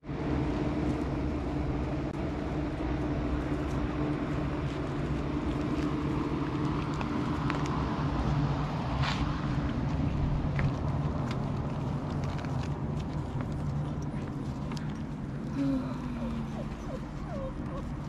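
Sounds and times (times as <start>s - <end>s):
low mechanical hum: 0.0s - 18.0s
rustling: 8.9s - 18.0s.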